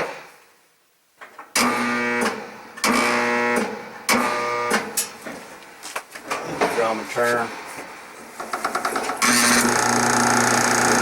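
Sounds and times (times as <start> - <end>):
dryer motor buzzing and stalling: 1.6 - 5.0, 8.4 - 11.0.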